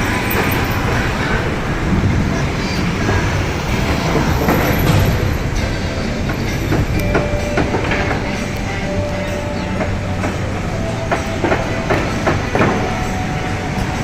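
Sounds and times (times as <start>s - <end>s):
machinery running: 0.0s - 14.0s
sharp metallic knocks and clanks: 3.0s - 14.0s.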